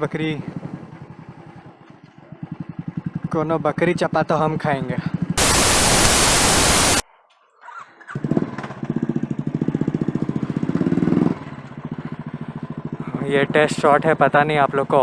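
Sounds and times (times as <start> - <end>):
static hiss burst: 5.4 - 7.0
motorcycle engine running: 9.2 - 14.3.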